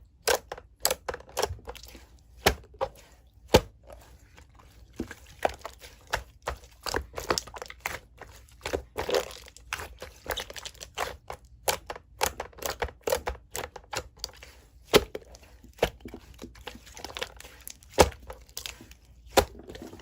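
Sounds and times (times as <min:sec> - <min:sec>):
slime squishing sticky pops: 0:05.3 - 0:20.0.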